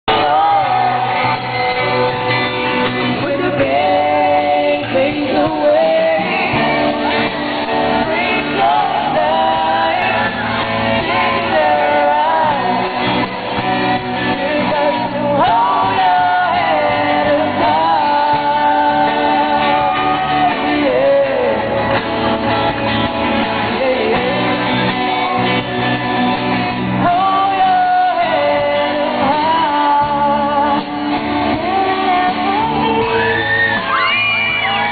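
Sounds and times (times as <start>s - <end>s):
person singing a melody: 0.0s - 1.7s, 3.0s - 6.7s, 8.0s - 13.2s, 14.2s - 22.0s, 23.6s - 24.8s, 27.0s - 33.6s
live band playing: 0.1s - 34.9s.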